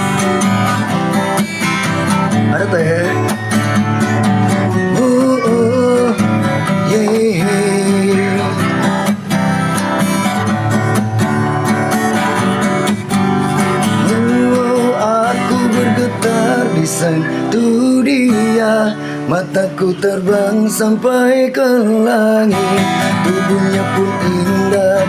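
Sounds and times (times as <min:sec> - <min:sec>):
acoustic guitar strumming: 0:00.0 - 0:25.0
wavering melody line: 0:04.0 - 0:08.7.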